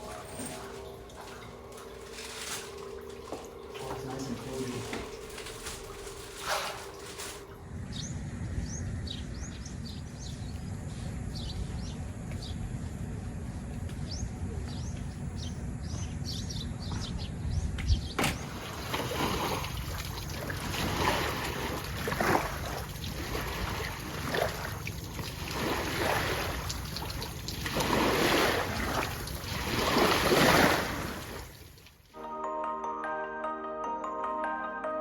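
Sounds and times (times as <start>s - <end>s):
water splashing and sloshing: 0.0s - 7.9s, 18.2s - 32.2s
low rumble: 7.5s - 18.2s.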